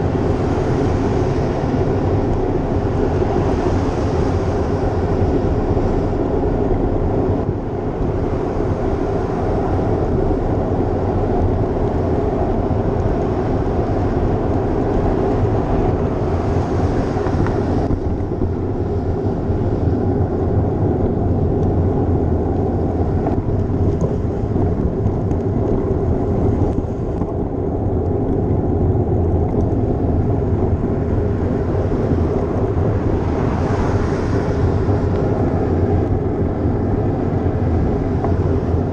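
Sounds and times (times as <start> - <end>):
bicycle tyre and road noise: 0.0 - 38.9
wind buffeting microphone: 0.0 - 38.9.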